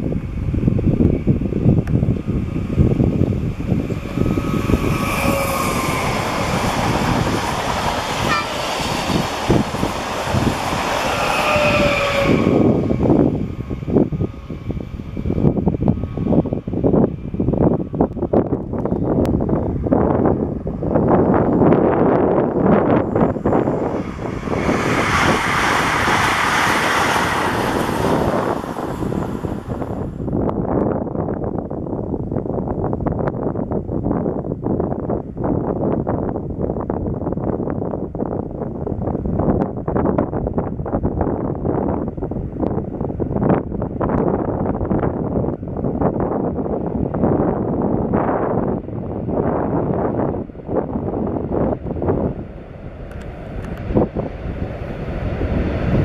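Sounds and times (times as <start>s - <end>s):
train passing at speed: 0.0s - 30.8s, 38.8s - 56.0s
low rumble: 0.0s - 32.9s.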